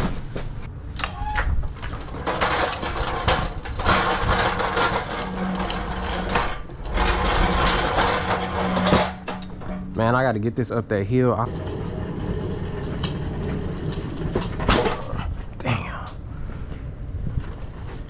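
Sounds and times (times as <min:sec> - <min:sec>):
steady low hum: 0:00.0 - 0:01.0
cart rattling over rough ground: 0:01.7 - 0:10.1, 0:11.4 - 0:15.5.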